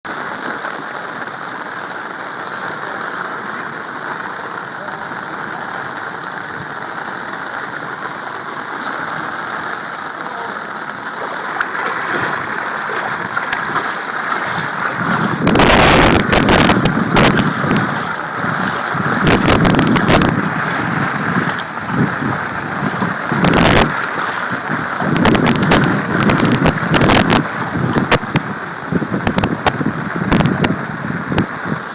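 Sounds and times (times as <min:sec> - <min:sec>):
heavy rain hissing: 0:00.1 - 0:31.9
wind buffeting microphone: 0:11.2 - 0:31.9.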